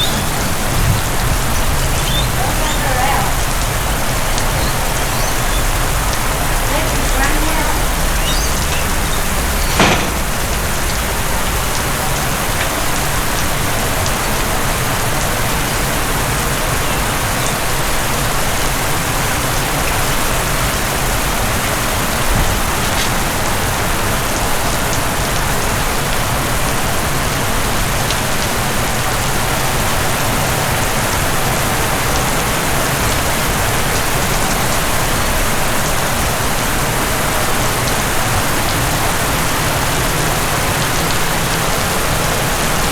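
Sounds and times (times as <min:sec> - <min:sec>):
heavy rain falling: 0:00.0 - 0:42.9
sharp knock: 0:09.7 - 0:10.6.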